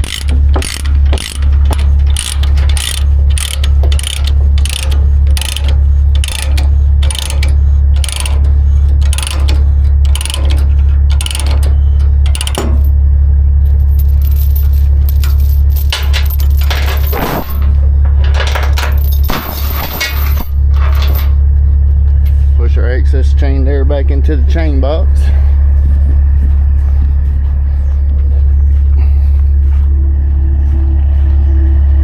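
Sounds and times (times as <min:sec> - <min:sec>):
ratchet chain binder clicking: 0:00.0 - 0:13.0, 0:13.8 - 0:21.3
steady low hum: 0:00.0 - 0:32.0.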